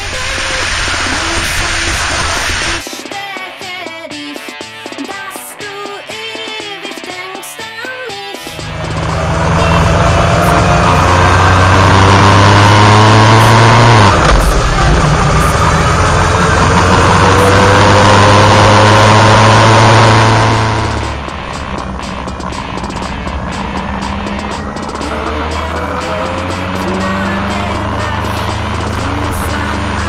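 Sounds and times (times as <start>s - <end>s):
motorcycle engine accelerating: 8.4s - 30.0s.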